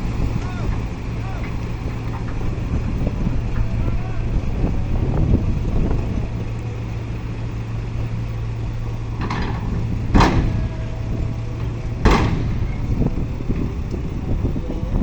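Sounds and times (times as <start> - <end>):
heavy diesel machinery droning: 0.0 - 15.0
sharp bangs: 9.1 - 13.8.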